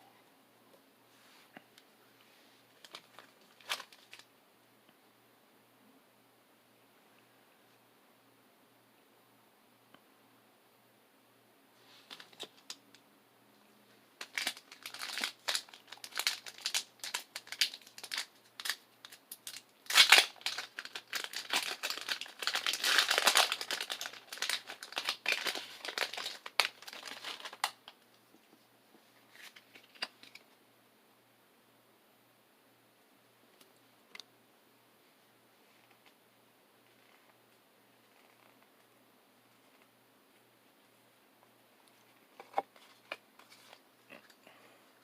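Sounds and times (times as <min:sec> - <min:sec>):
foil wrapper crinkling and tearing: 0:02.8 - 0:04.3, 0:12.0 - 0:12.8, 0:14.2 - 0:27.9.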